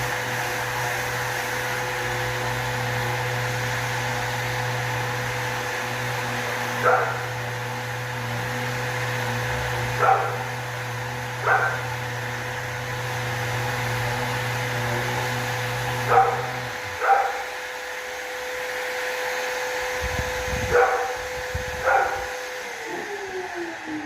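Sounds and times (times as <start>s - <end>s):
sanding machinery humming: 0.0s - 24.0s
dog barking: 6.8s - 7.3s, 10.0s - 10.5s, 11.4s - 11.9s, 16.1s - 17.5s, 20.7s - 21.2s, 21.8s - 22.3s.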